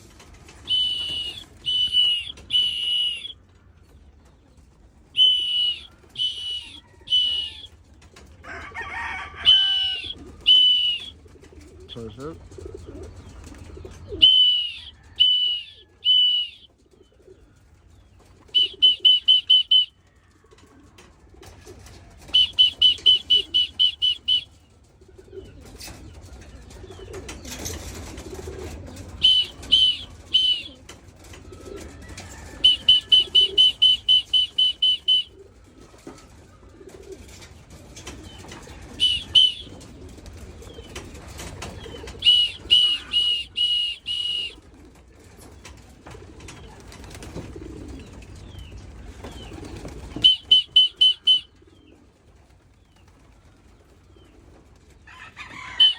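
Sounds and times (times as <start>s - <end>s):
pigeons cooing: 0.0s - 55.9s
wings flapping: 0.0s - 55.9s
high whistled notes: 0.6s - 3.3s, 5.2s - 7.6s, 14.2s - 16.6s, 18.6s - 19.9s, 29.2s - 30.7s, 32.7s - 35.3s, 39.0s - 39.7s, 42.2s - 44.6s, 50.2s - 51.4s.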